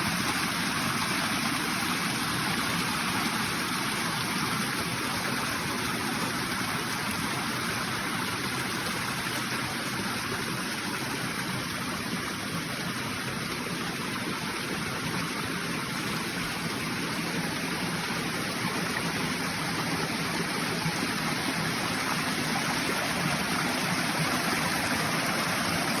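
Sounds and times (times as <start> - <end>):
stream water flowing: 0.0 - 26.0.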